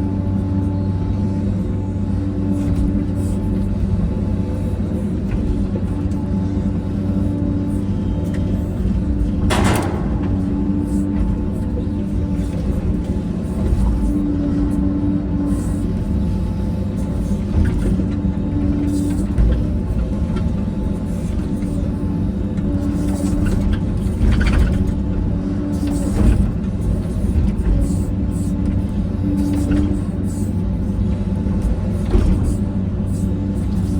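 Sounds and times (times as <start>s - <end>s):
heavy diesel engine running: 0.0s - 33.9s
short knocks: 9.5s - 11.8s.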